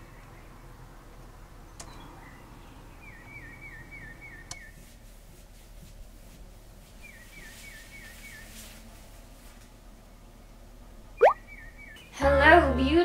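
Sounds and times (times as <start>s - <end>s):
bird whistling: 11.2s - 11.7s.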